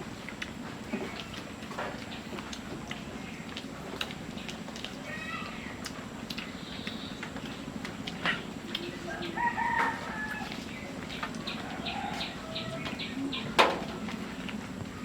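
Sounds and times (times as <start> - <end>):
steady low hum: 0.0 - 15.0
chickens clucking: 5.9 - 15.0.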